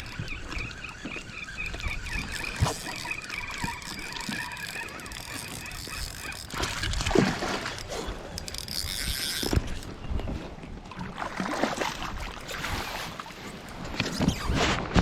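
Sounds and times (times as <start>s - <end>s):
thin whine: 0.0s - 6.9s
water noise: 0.0s - 15.0s.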